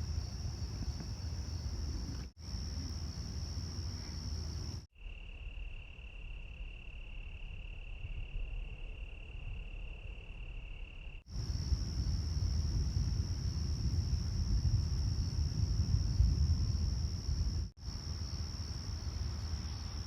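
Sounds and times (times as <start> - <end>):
night insects trilling: 0.0 - 20.0.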